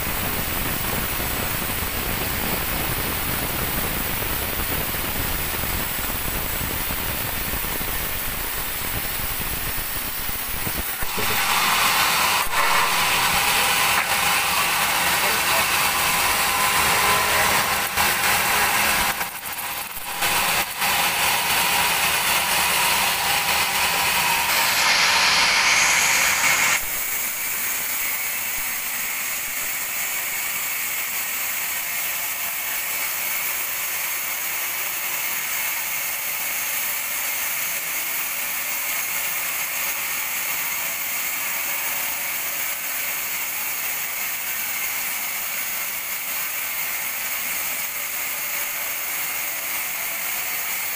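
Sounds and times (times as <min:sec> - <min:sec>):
machine running: 0:00.0 - 0:31.2
bandsaw cutting log: 0:00.0 - 0:50.9.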